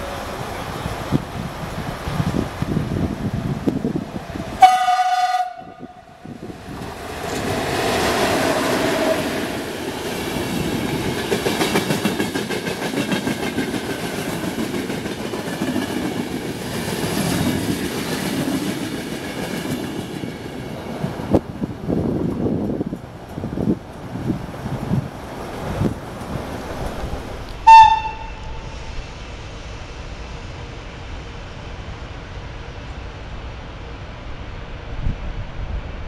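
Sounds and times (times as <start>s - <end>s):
train horn blast: 4.6s - 6.2s, 27.6s - 28.7s
train wheels clattering: 6.7s - 20.8s.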